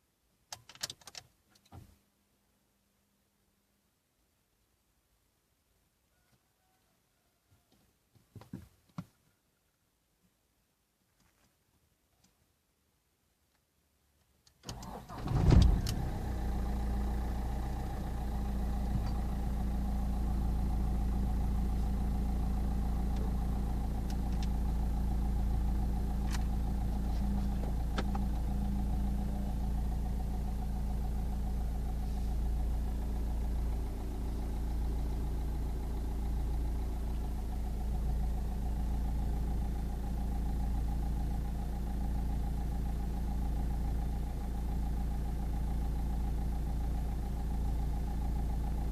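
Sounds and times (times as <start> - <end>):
diesel engine starting and idling: 14.7 - 48.9.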